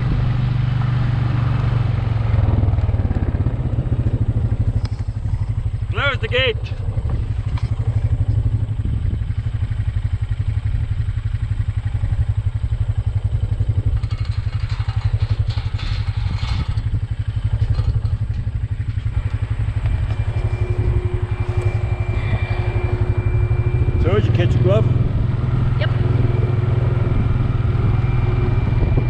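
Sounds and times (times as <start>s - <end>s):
quad engine running: 0.0s - 29.0s
rattling and clatter: 12.2s - 29.0s.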